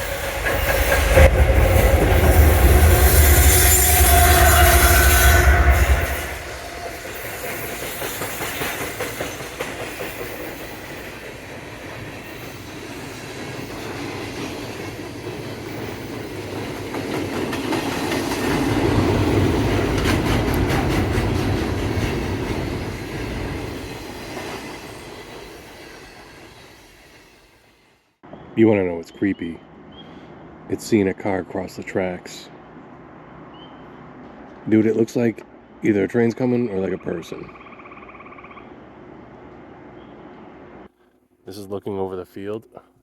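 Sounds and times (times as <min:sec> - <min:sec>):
train wheels clicking over rail joints: 0:00.0 - 0:27.7.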